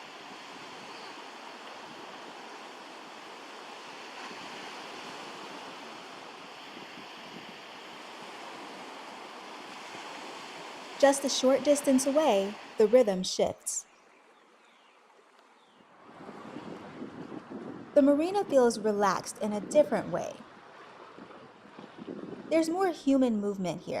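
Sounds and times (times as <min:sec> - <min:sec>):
surf washing onto a beach: 0:00.0 - 0:12.8.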